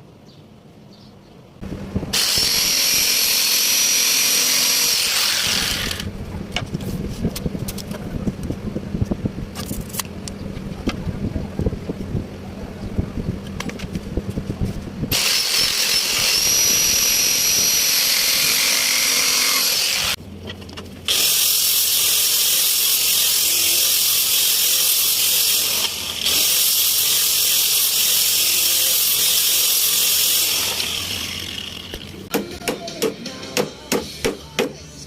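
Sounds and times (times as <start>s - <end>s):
handheld power tool whining: 2.1s - 6.1s, 15.1s - 20.2s, 21.1s - 32.3s.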